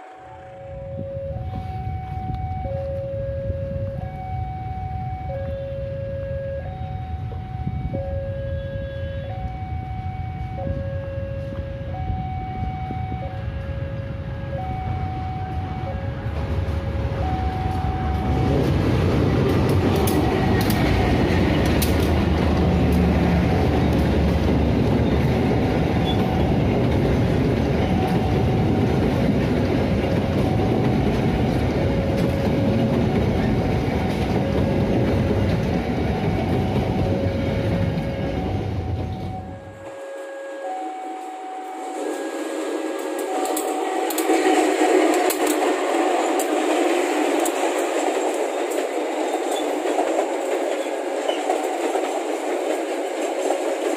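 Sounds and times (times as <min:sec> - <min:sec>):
train rumbling past: 0:00.0 - 0:53.9
two-tone crossing warning signal: 0:00.0 - 0:53.9
wheel clatter over rail joints: 0:43.0 - 0:53.9.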